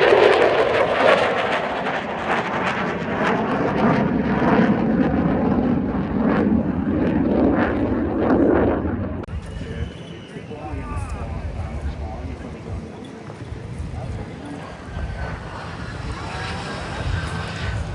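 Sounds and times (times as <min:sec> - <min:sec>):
aircraft flying past roaring: 0:00.0 - 0:17.9.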